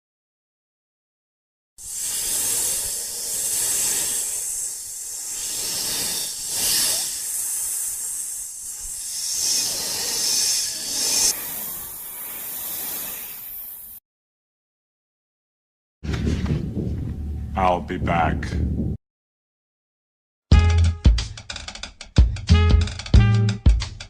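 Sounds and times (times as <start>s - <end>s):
loud hissing: 1.8s - 14.0s.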